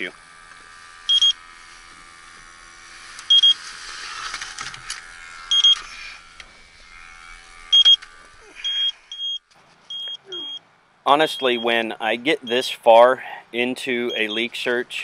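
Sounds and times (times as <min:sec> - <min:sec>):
leak detector beeping: 0:01.1 - 0:01.4, 0:03.3 - 0:03.6, 0:05.5 - 0:05.8, 0:07.7 - 0:10.6, 0:11.2 - 0:11.8, 0:14.1 - 0:14.5.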